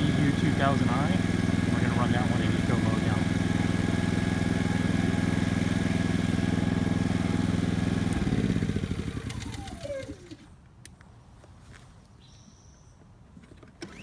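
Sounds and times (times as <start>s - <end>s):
engine winding down with falling whine: 0.0s - 10.5s
generator running: 0.0s - 10.6s.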